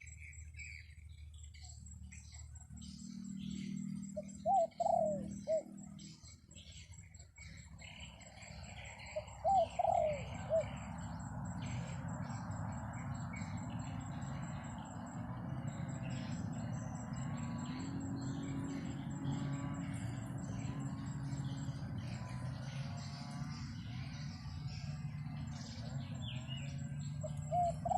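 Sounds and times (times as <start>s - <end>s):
small birds chirping: 0.0s - 27.9s
dove cooing: 3.6s - 5.8s, 8.5s - 12.5s, 27.1s - 27.9s.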